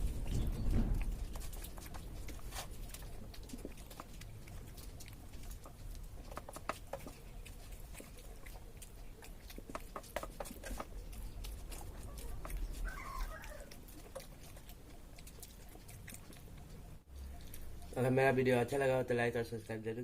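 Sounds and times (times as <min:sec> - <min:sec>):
low rumble: 0:00.0 - 0:03.5
eating clicks and smacks: 0:00.0 - 0:18.3.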